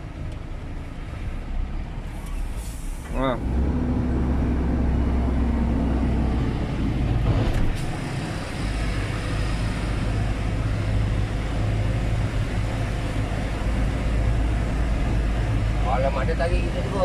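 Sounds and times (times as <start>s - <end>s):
diesel truck engine under load: 0.0s - 16.0s
short hiss: 2.2s - 3.1s.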